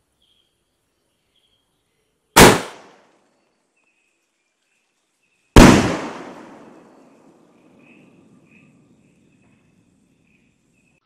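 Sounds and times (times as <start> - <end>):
firework bangs with echo: 2.4 - 3.0, 5.6 - 7.0.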